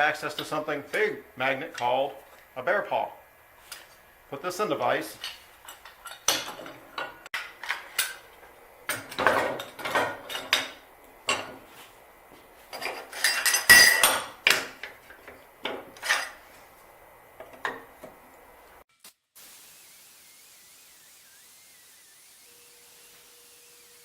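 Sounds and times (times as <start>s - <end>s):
steel pieces clanking on metal: 12.8s - 14.7s, 15.7s - 16.4s.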